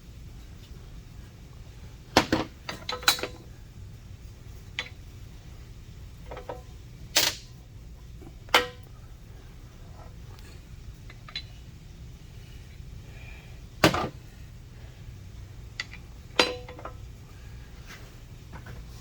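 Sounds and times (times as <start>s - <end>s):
steady low hum: 0.0s - 19.0s
steel parts clinking: 2.6s - 3.4s, 6.3s - 7.5s, 11.0s - 11.6s, 15.7s - 17.0s.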